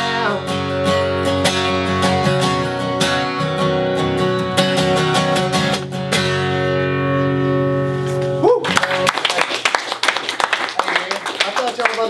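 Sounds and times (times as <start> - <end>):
acoustic guitar strumming: 0.0 - 9.1.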